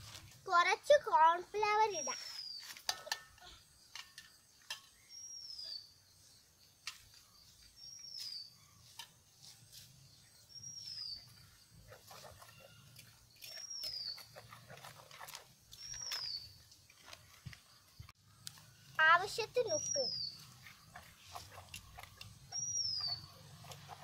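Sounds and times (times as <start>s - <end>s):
bird whistling: 22.5s - 23.4s.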